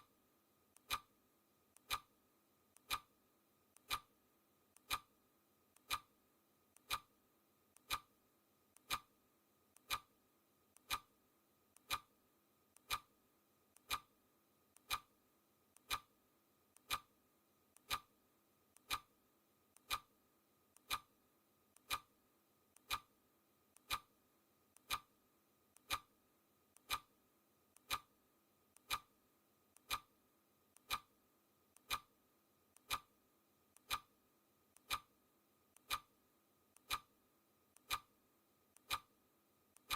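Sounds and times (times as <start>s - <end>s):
clock ticking: 0.7s - 1.1s, 1.7s - 2.1s, 2.7s - 3.1s, 3.7s - 4.1s, 4.7s - 5.1s, 5.7s - 6.1s, 6.7s - 7.1s, 7.7s - 8.1s, 8.7s - 9.1s, 9.7s - 11.1s, 11.7s - 12.1s, 12.7s - 13.1s, 13.7s - 14.1s, 14.7s - 15.1s, 15.7s - 16.1s, 16.7s - 17.1s, 17.7s - 18.1s, 18.7s - 19.1s, 19.7s - 22.1s, 22.7s - 33.2s, 33.8s - 39.2s.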